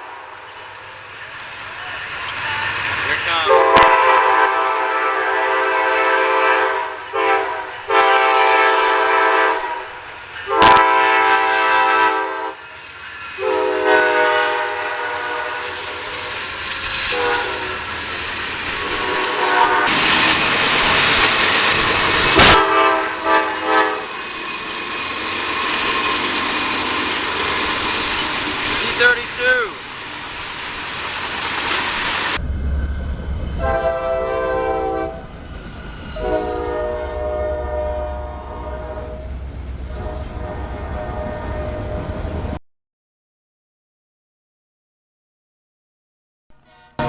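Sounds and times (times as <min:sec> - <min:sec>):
train rolling past: 0:00.0 - 0:42.6
locomotive horn chord blasts: 0:03.3 - 0:12.6, 0:13.4 - 0:16.1, 0:17.1 - 0:17.9, 0:18.8 - 0:20.0, 0:22.4 - 0:24.1, 0:33.6 - 0:35.2, 0:36.2 - 0:39.3, 0:39.9 - 0:42.0, 0:46.6 - 0:47.0.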